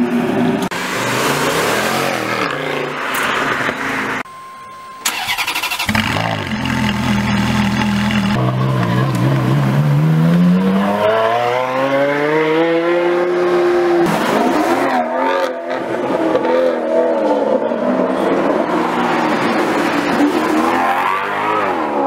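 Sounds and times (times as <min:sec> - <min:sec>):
gear change: 0:05.0 - 0:09.8
sports car engine accelerating: 0:05.8 - 0:15.5.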